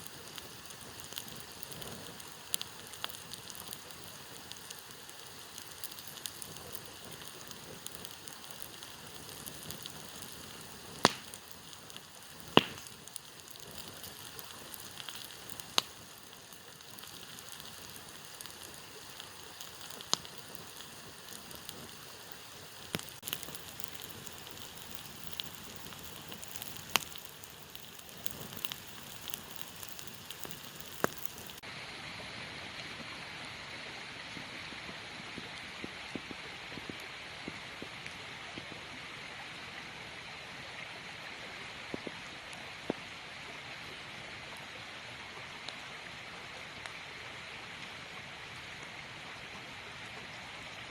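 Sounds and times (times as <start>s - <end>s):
burning wood popping: 0.0s - 31.6s
campfire hissing and crackling: 0.0s - 50.9s.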